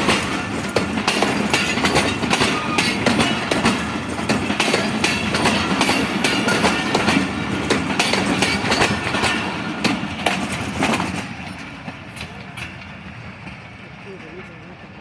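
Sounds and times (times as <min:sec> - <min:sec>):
train wheels clicking over rail joints: 0:00.0 - 0:15.0.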